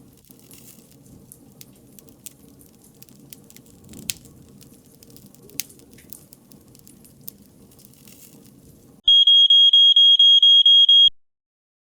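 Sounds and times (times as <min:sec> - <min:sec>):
wood fire crackling and popping: 0:00.0 - 0:09.0
pager alarm beeping rapidly: 0:09.1 - 0:11.1.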